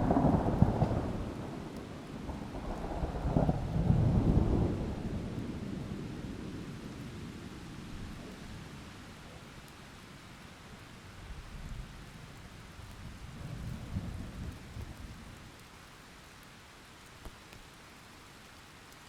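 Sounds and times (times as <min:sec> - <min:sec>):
rolling thunder: 0:00.0 - 0:08.4
rain hiss: 0:00.0 - 0:19.0.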